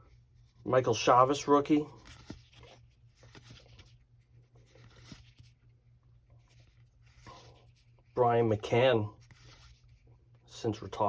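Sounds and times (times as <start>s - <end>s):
low steady hum: 0.0s - 11.0s
trading cards rustling: 1.0s - 10.1s.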